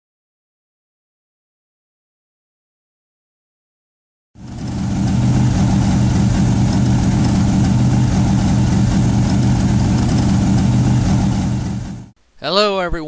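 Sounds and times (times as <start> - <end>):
car engine idling: 4.4 - 12.1.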